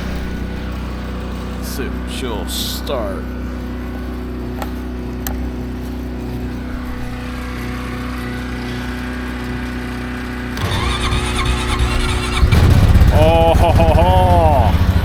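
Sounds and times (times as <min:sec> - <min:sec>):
quad engine cranking and starting: 0:00.0 - 0:15.0
steady engine hum: 0:00.0 - 0:15.0.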